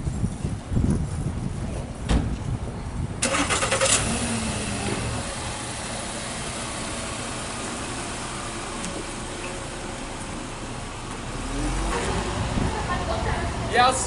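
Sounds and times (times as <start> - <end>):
car engine cranking and running: 3.2 - 13.6.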